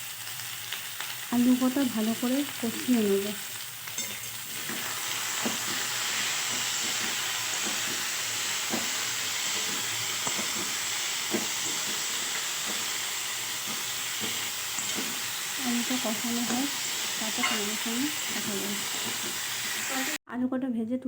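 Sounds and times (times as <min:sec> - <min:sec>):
potatoes sizzling in oil: 0:00.0 - 0:20.2.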